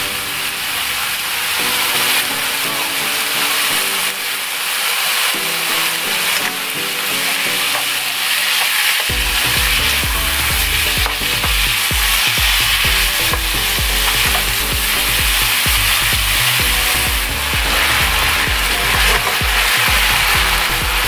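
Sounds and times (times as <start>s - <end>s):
food sizzling in a frying pan: 0.4s - 20.3s
background music with bass beat: 9.1s - 21.0s.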